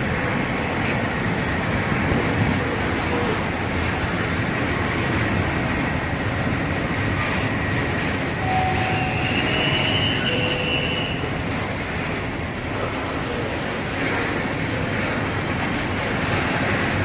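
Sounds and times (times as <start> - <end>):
train rumbling on rails: 0.0 - 17.0
wheel squeal: 8.4 - 11.3.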